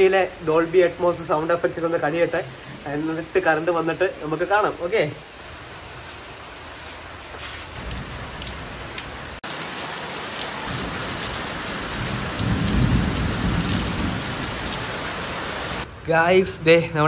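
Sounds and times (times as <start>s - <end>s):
heavy rain on roofs and concrete: 0.0s - 17.0s
thunder rumble: 7.8s - 9.4s, 10.7s - 16.1s.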